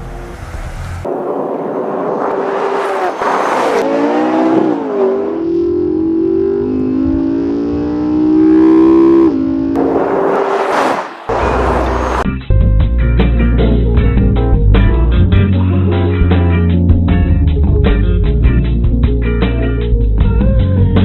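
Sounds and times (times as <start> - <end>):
car engine accelerating: 0.0 - 12.3.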